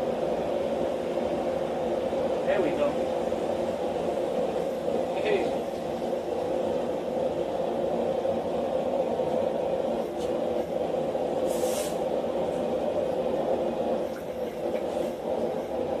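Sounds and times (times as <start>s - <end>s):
brief high hiss: 11.4s - 12.0s.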